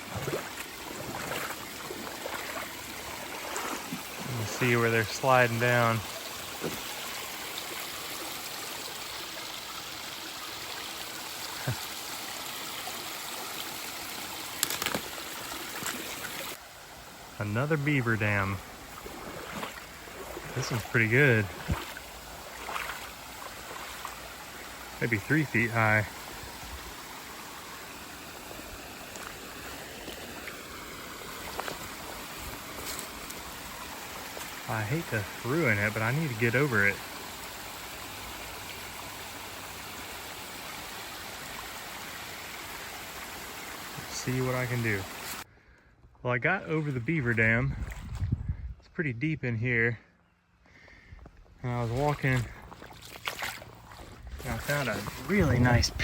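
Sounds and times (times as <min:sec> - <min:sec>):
creek water flowing: 0:00.0 - 0:48.6, 0:50.6 - 0:56.0.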